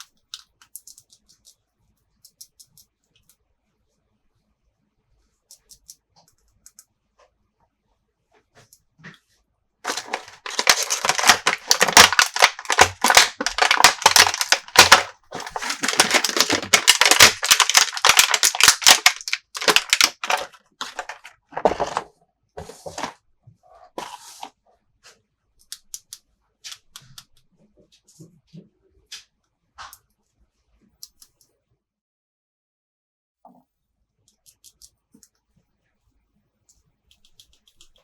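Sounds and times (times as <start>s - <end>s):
packaging crinkling and tearing: 9.9s - 22.1s.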